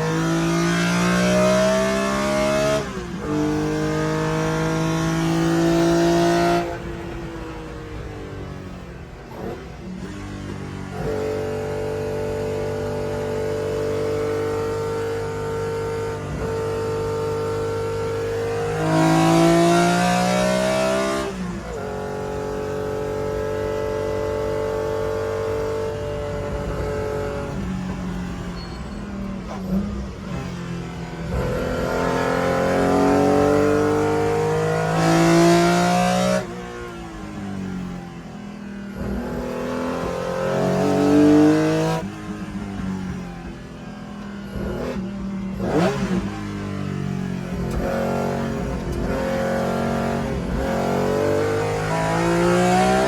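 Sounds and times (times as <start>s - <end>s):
race car engine revving: 0.0s - 53.0s.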